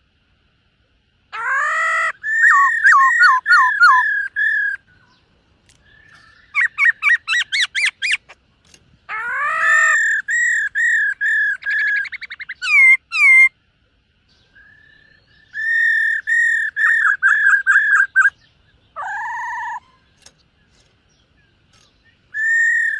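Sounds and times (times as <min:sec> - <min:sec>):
bird singing whistled phrases: 0:01.4 - 0:04.9, 0:09.2 - 0:13.5, 0:14.3 - 0:18.4, 0:22.3 - 0:22.9.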